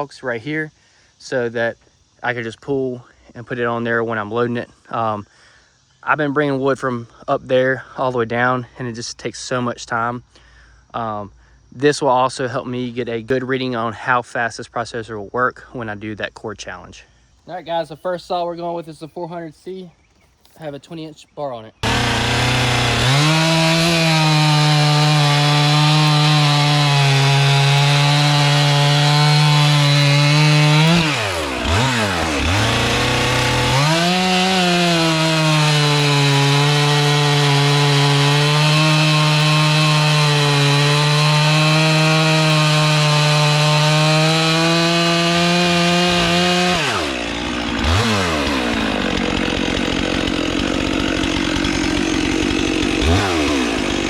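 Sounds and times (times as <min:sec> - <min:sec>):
chainsaw cutting logs: 0:21.8 - 0:54.0.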